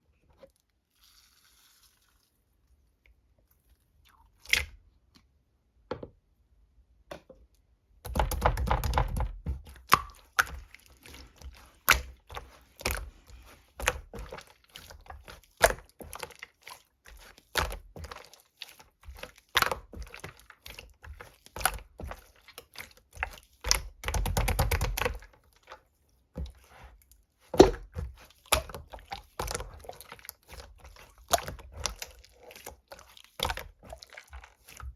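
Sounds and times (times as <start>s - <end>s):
slime squelching and popping: 8.1s - 34.9s.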